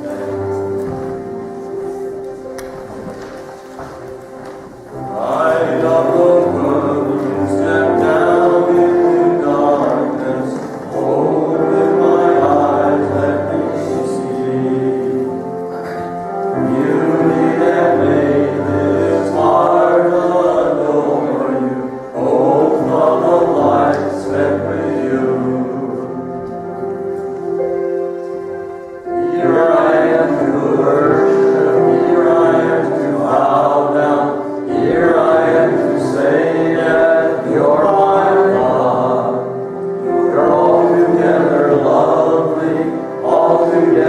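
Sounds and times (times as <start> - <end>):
congregation singing a hymn: 0.0 - 44.0
instrumental accompaniment: 0.0 - 44.0.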